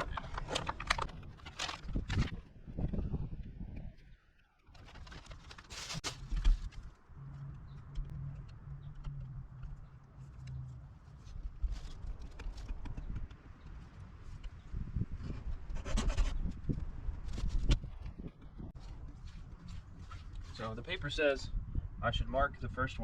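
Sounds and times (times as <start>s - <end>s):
paper rustling: 4.7s - 7.0s.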